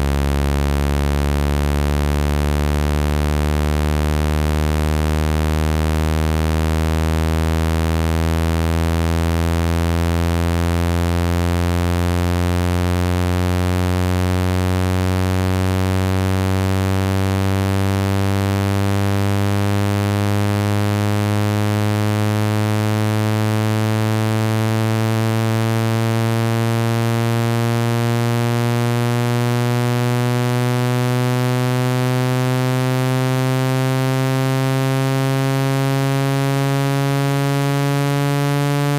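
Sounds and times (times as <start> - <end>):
low buzzy rising tone: 24.8 - 38.9.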